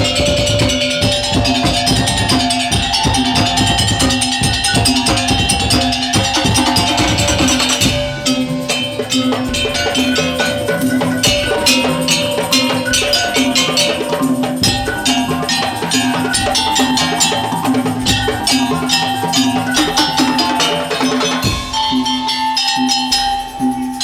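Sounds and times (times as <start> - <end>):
percussion ensemble playing fast rhythm: 0.0 - 24.0.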